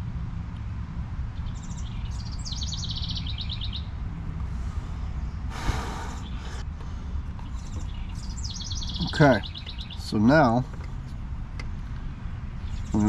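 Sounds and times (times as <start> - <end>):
low outdoor rumble: 0.0 - 13.0
songbird singing with trill: 1.4 - 4.0, 5.2 - 6.7, 7.3 - 13.0.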